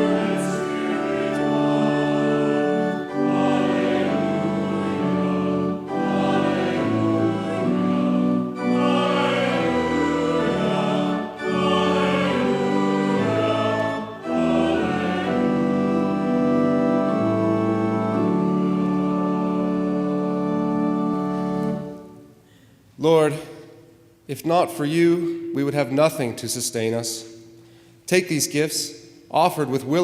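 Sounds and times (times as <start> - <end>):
choir singing sacred music: 0.0 - 22.4
organ accompaniment: 0.0 - 22.4.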